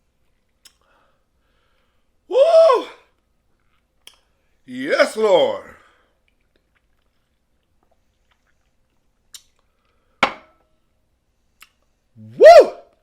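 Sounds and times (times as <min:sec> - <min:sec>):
person chewing: 0:03.5 - 0:04.3, 0:06.2 - 0:10.2, 0:11.6 - 0:11.9.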